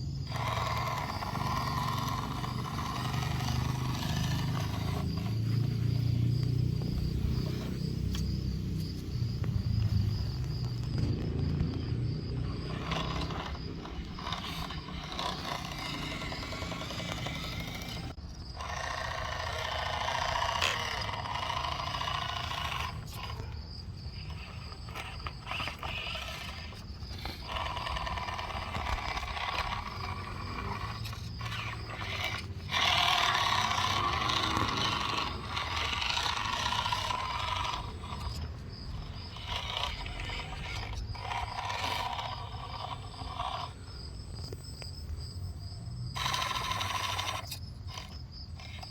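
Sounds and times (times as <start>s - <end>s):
electric drivetrain whining and grinding: 0.0s - 48.9s.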